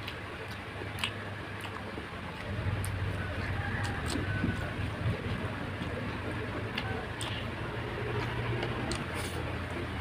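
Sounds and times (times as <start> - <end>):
wet mouth clicks: 0.0 - 1.8
close chewing: 0.0 - 10.0
steady low hum: 0.0 - 10.0.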